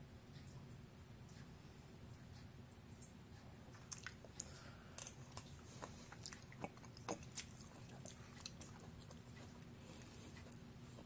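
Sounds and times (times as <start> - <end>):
soft chewing: 0.3 - 11.0
small mouth clicks: 3.7 - 10.6.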